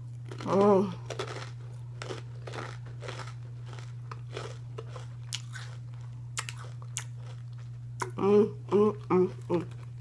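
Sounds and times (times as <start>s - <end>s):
person chewing crunchy chips: 0.0s - 10.0s
steady low hum: 0.0s - 10.0s
sharp crunching cracks: 0.2s - 8.1s.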